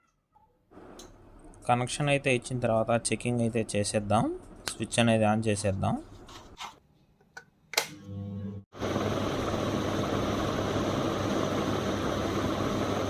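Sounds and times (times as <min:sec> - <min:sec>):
short low hum: 0:08.0 - 0:08.6.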